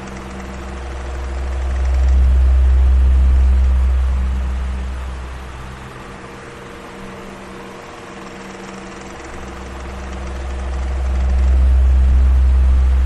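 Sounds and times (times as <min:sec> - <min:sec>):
electric fan running: 0:00.0 - 0:13.0
low rumble: 0:00.4 - 0:06.5, 0:09.4 - 0:13.0.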